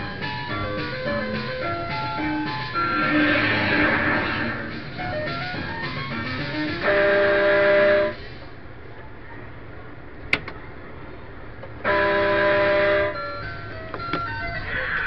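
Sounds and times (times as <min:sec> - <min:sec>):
truck horn through speaker: 0:06.8 - 0:08.2, 0:11.8 - 0:13.2.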